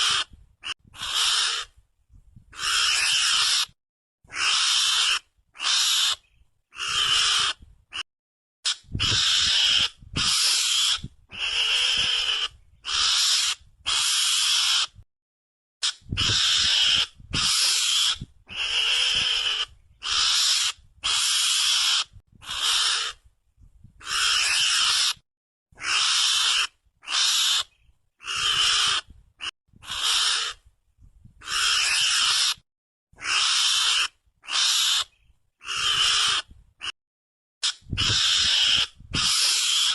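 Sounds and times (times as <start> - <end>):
mongoose screeching calls: 0.0 - 1.7, 2.5 - 8.0, 8.7 - 15.0, 15.8 - 23.2, 24.0 - 25.2, 25.8 - 30.6, 31.4 - 32.6, 33.2 - 37.0, 37.6 - 39.9.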